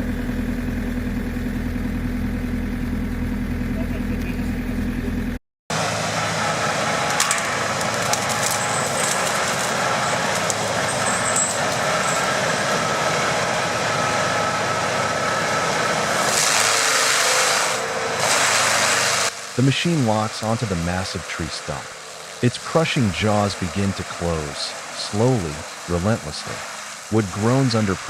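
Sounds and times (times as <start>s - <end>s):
stump grinding machine noise: 0.0s - 28.0s
wood splintering cracks: 7.0s - 12.8s, 15.8s - 19.6s.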